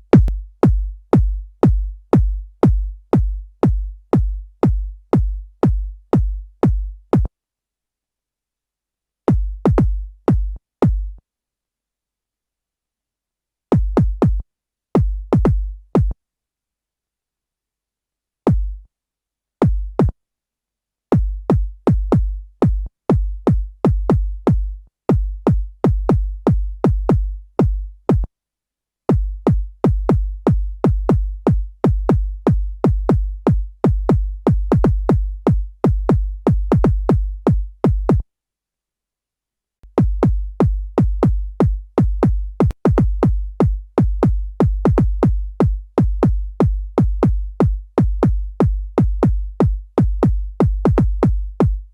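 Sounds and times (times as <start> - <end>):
synthesized electronic kick drum: 0.0 - 7.3, 9.3 - 11.2, 13.8 - 14.4, 15.0 - 16.2, 18.5 - 18.8, 19.6 - 20.2, 21.2 - 28.3, 29.1 - 38.2, 39.9 - 51.9.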